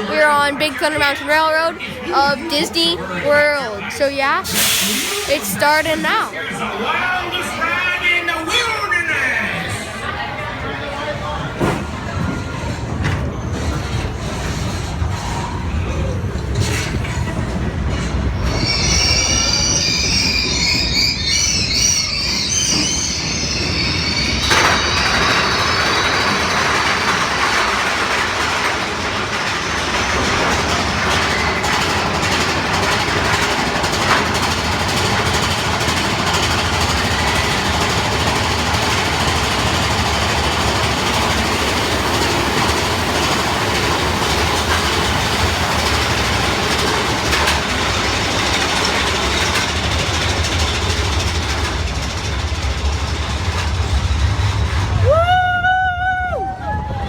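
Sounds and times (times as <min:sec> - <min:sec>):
roller coaster cars rumbling: 0:00.0 - 0:57.0
high wavering squeal: 0:18.4 - 0:26.5.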